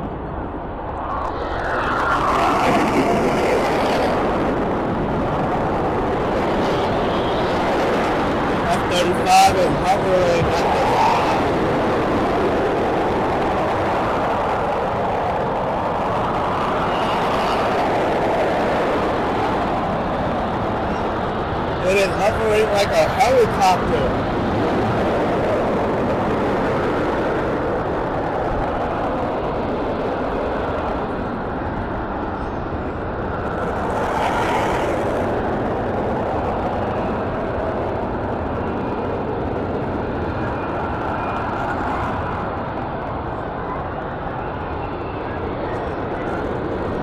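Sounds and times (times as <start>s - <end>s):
jet engine roaring: 0.0s - 47.0s.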